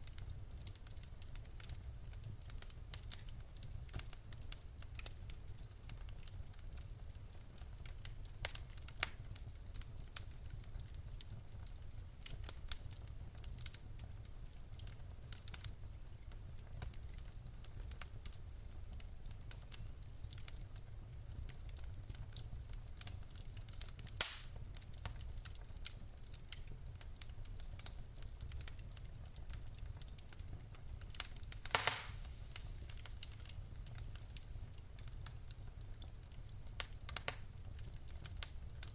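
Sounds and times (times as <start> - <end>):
low fire rumble: 0.0 - 38.9
wood fire crackling: 0.0 - 38.9
sharp loud pop: 24.2 - 24.5, 31.7 - 32.3
fire hissing: 24.2 - 24.6, 31.5 - 33.7.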